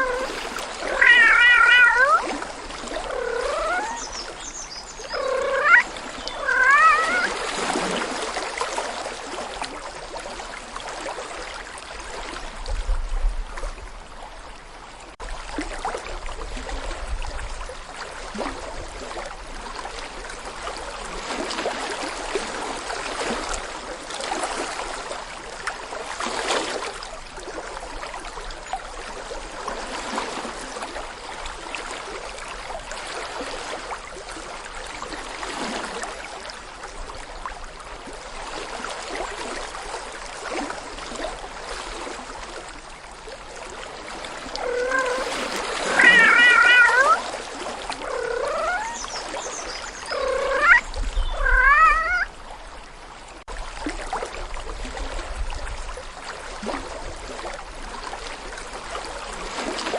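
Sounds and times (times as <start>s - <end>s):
cat meowing: 0.0s - 2.4s, 3.1s - 4.2s, 5.1s - 7.4s, 44.4s - 47.3s, 48.0s - 49.1s, 50.1s - 52.3s
water burbling and splashing: 0.0s - 59.9s.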